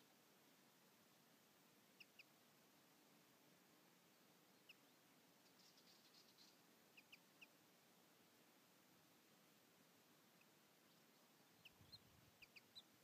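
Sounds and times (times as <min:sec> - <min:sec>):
small birds chirping: 0:01.8 - 0:02.4, 0:04.0 - 0:07.6, 0:10.2 - 0:13.0.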